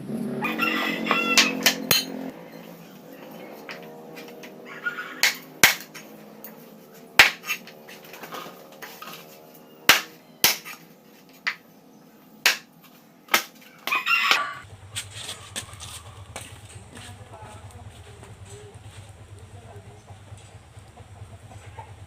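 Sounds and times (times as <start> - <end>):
kitchen utensils knocking: 1.1 - 2.3.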